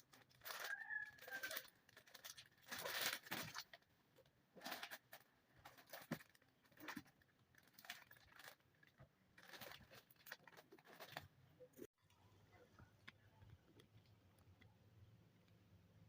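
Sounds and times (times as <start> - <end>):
packaging rustling and crinkling: 0.0 - 3.9, 4.6 - 11.3.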